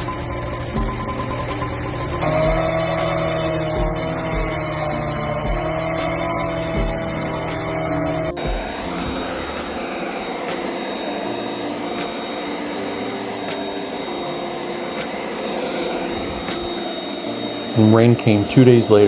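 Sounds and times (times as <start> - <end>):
concrete saw cutting: 1.3 - 19.0.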